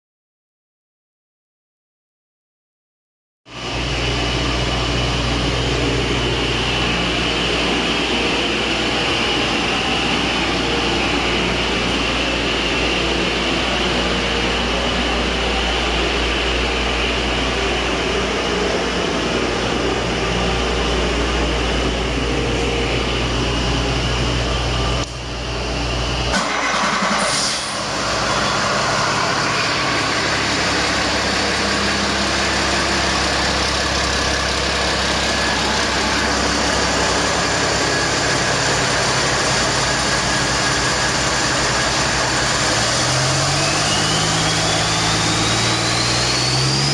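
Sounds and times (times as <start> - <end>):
diesel engine idling: 3.6 - 46.9.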